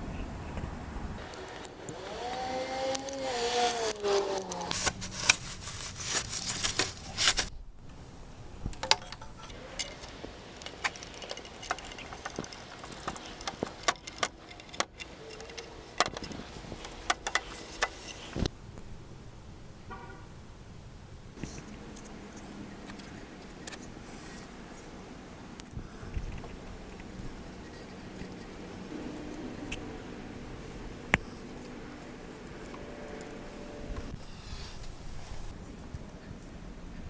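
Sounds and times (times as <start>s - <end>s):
hand tools clicking and clinking: 2.3s - 7.5s, 8.8s - 18.0s.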